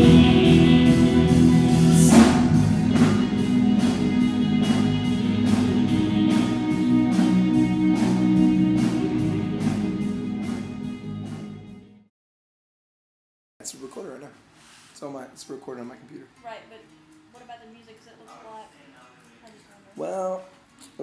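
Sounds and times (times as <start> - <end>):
cymbal crash: 0.0 - 10.3
cymbal beat: 0.0 - 10.8
instrumental worship band: 0.0 - 11.7
sustained guitar chords: 0.0 - 12.0.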